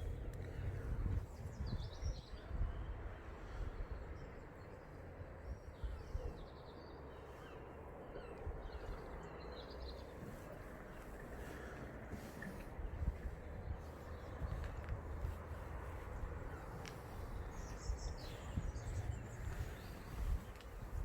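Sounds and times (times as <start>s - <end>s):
low rumble of wind: 0.0s - 21.0s
small birds chirping: 0.0s - 21.0s.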